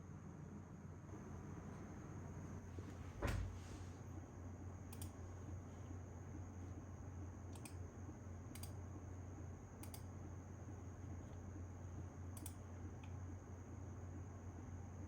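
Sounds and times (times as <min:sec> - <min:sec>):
faint high whine: 0:00.0 - 0:15.0
steady low hum: 0:00.0 - 0:15.0
light sharp clicks: 0:04.9 - 0:05.2, 0:08.5 - 0:08.8, 0:09.8 - 0:10.1, 0:12.4 - 0:13.2.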